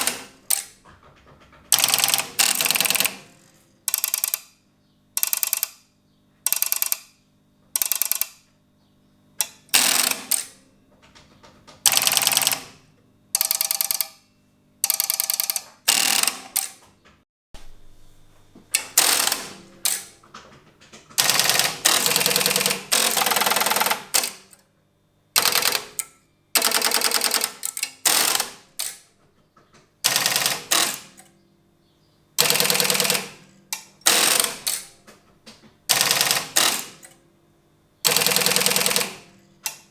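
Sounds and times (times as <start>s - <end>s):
telephone exchange switches clicking: 0.0s - 0.8s, 1.7s - 3.3s, 3.9s - 4.6s, 5.2s - 5.8s, 6.5s - 7.1s, 7.8s - 8.4s, 9.4s - 10.6s, 11.8s - 12.8s, 13.4s - 14.2s, 14.8s - 16.8s, 18.8s - 20.2s, 21.2s - 24.6s, 25.4s - 29.1s, 30.0s - 31.3s, 32.4s - 35.0s, 35.9s - 37.2s, 38.1s - 39.9s.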